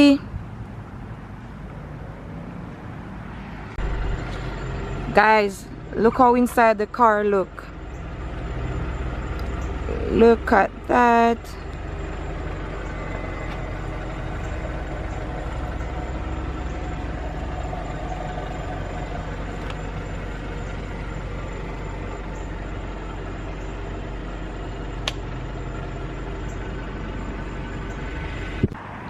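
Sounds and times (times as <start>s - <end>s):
car idling: 0.0s - 29.0s
sharp click: 25.0s - 25.2s.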